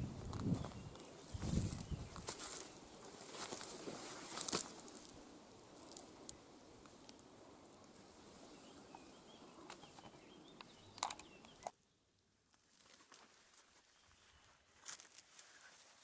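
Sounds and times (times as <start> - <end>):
background hiss: 0.0 - 16.0
faint bird chirp: 8.4 - 12.1.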